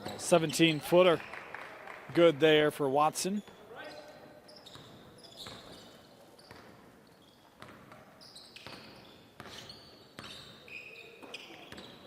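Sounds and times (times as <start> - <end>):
sneaker squeaks: 0.0 - 1.3, 3.4 - 12.0
basketball bouncing on hardwood floor: 7.6 - 9.6.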